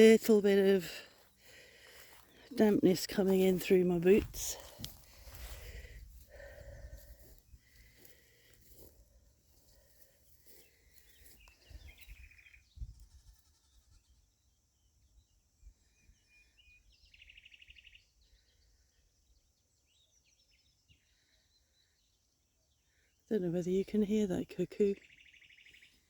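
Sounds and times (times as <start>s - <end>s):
faint bird chirps: 9.5s - 23.4s.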